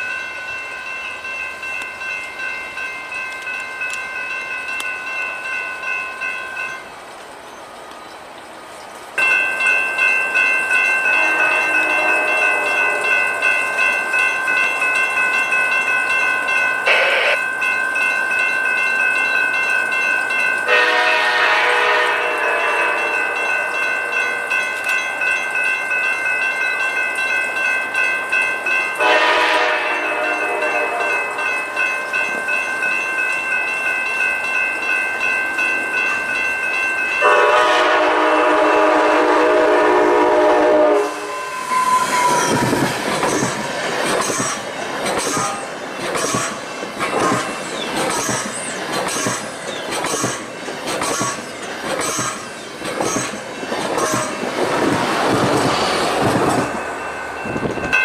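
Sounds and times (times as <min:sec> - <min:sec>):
train horn blasts: 0:11.1 - 0:13.4, 0:16.9 - 0:17.4, 0:20.7 - 0:23.7, 0:29.0 - 0:31.4, 0:37.2 - 0:42.9
train wheels clattering over rail joints: 0:42.3 - 0:56.8.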